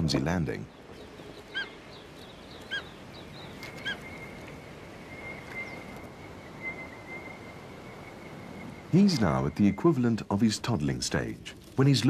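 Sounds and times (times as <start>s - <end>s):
sharp bird calls: 0.6s - 10.0s.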